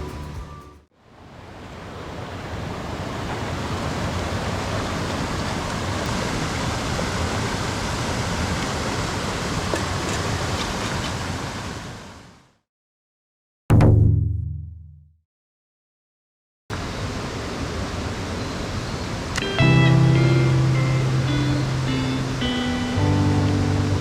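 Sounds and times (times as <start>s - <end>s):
stream rushing: 1.0s - 12.4s, 16.7s - 24.0s.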